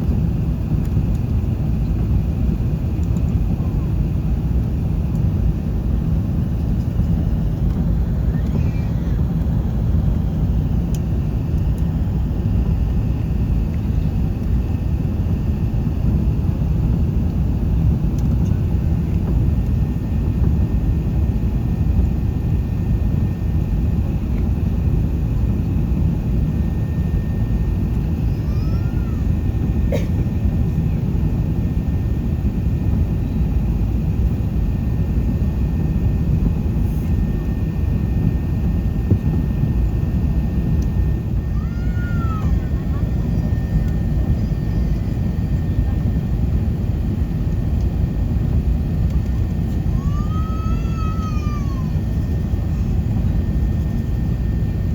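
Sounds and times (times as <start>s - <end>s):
airplane cabin rumble: 0.0s - 54.9s.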